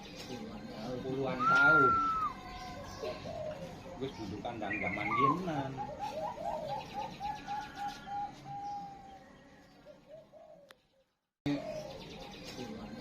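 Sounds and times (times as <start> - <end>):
small birds chirping: 0.0 - 13.0
dove cooing: 1.3 - 10.7, 11.5 - 12.3.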